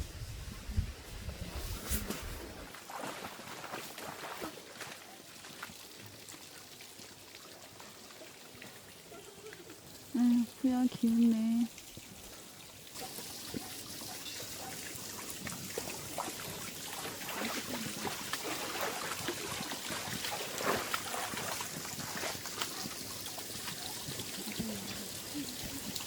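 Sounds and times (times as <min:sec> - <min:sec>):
water trickling and splashing: 0:01.9 - 0:26.0.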